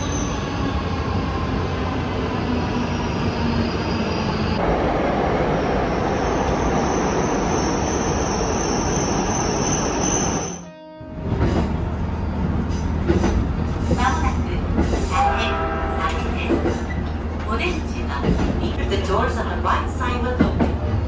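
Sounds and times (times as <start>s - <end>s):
train wheels rumbling on track: 11.2s - 21.0s.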